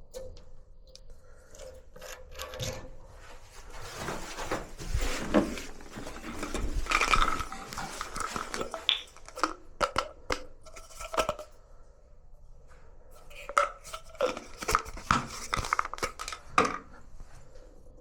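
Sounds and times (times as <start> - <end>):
metal parts and tools clattering: 3.8 - 9.5.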